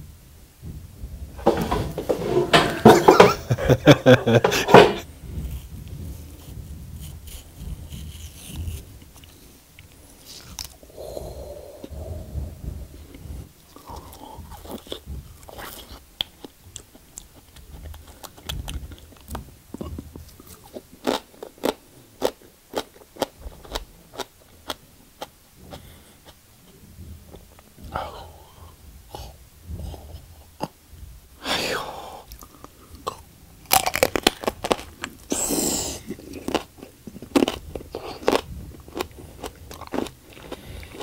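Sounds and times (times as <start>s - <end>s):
chewing with crunching: 5.1s - 30.8s, 32.2s - 41.0s.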